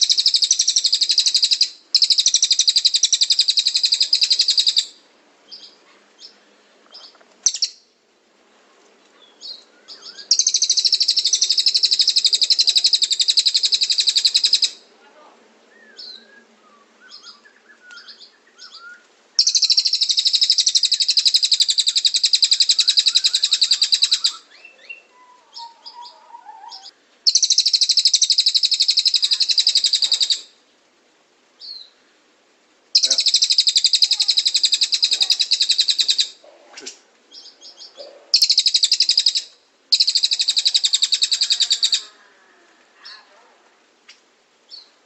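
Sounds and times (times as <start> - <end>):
bird trilling rapidly: 0.0 - 4.9, 7.4 - 7.8, 9.5 - 14.8, 17.1 - 30.5, 33.0 - 42.1
soft bird chirps: 5.5 - 7.9, 15.7 - 30.9, 31.6 - 32.1, 33.0 - 42.1.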